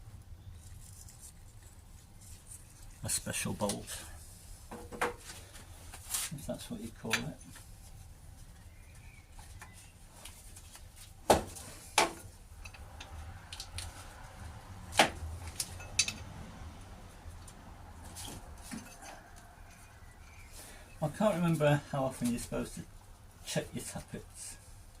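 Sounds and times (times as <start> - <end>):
metal tools clinking and knocking: 15.5 - 16.4, 18.6 - 20.5.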